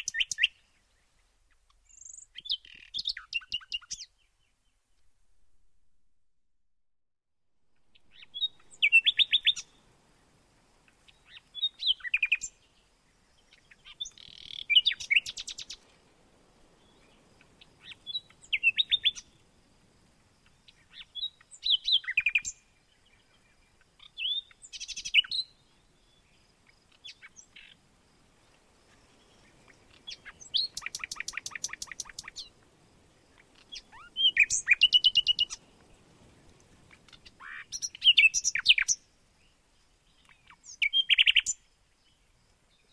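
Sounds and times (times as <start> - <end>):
songbird singing buzzy notes: 29.7 - 32.5, 33.6 - 35.6, 40.1 - 42.9.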